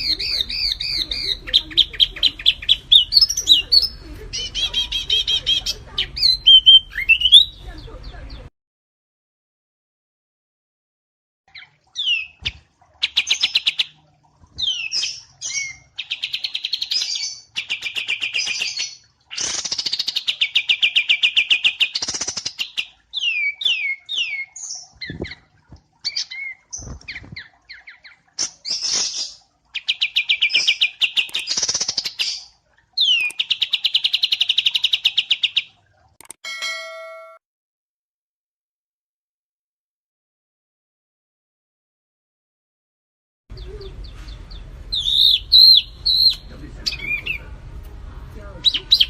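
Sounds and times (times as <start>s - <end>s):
songbird trilling and whistling: 0.0s - 7.6s, 14.6s - 25.4s, 26.0s - 35.6s, 43.6s - 47.4s, 48.6s - 49.0s.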